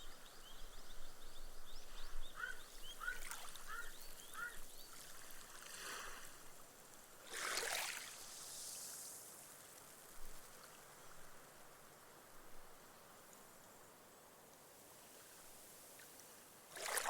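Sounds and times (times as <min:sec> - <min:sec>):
bird chirp: 0:00.0 - 0:05.0
wave washing up a beach: 0:07.2 - 0:09.8
foam fizzing into sand: 0:07.2 - 0:10.1.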